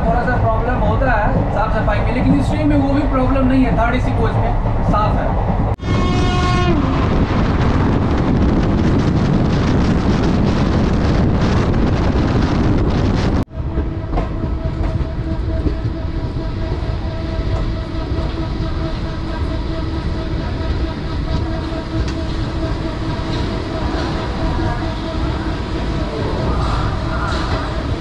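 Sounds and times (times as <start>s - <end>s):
train rushing and rattling past: 0.0s - 28.0s
train horn: 5.8s - 7.3s, 13.5s - 27.8s.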